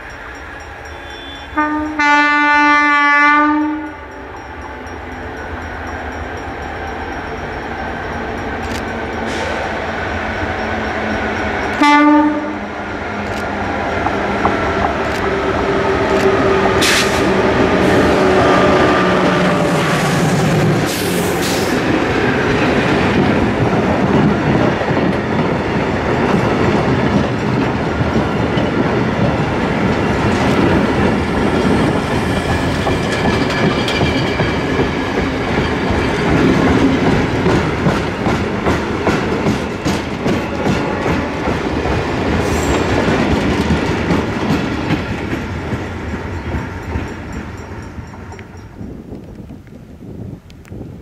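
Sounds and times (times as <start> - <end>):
train wheels clattering over rail joints: 32.4 - 48.6.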